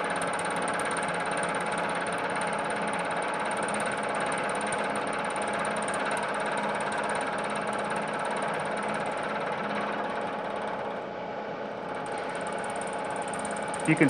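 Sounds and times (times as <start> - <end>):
milling machine hum: 0.0 - 14.0.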